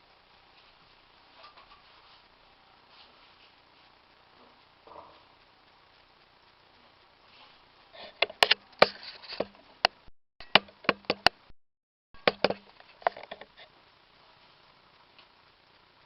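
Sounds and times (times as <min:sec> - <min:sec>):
coffee maker parts knocking together: 0:10.4 - 0:11.4, 0:12.2 - 0:13.3.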